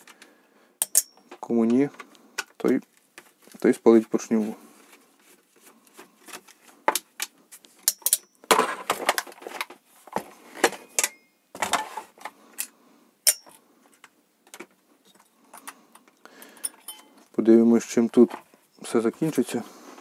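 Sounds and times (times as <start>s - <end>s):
metal tools clinking: 0.8s - 1.4s, 7.8s - 8.4s, 10.8s - 11.8s, 13.2s - 13.6s, 16.4s - 17.3s.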